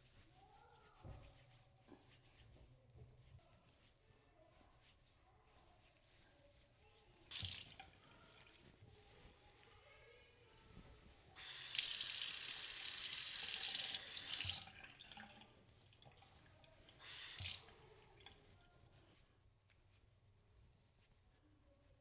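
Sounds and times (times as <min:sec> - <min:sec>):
water tap running: 0:07.3 - 0:07.9, 0:11.4 - 0:16.3, 0:17.0 - 0:17.8.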